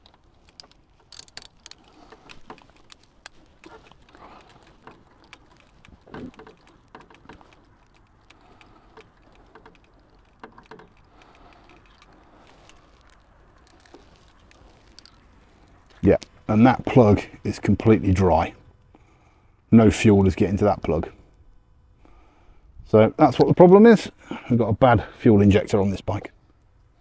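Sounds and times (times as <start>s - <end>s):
hand tools clicking and tapping: 0.0s - 15.2s.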